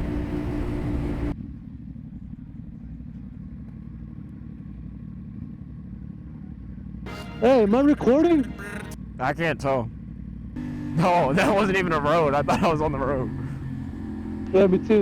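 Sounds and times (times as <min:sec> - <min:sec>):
wind rush while riding: 0:00.0 - 0:01.4
motorcycle engine rumble: 0:00.0 - 0:15.0.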